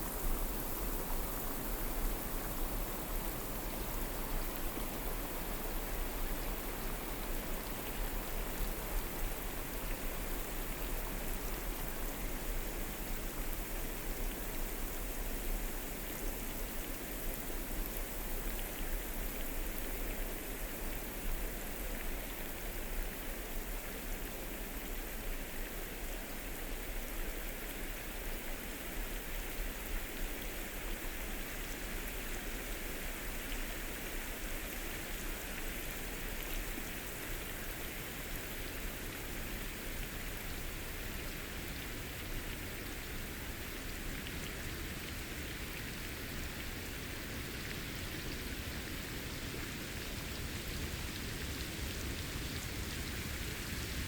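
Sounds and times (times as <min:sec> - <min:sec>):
rain pattering on leaves: 0:31.6 - 0:54.0.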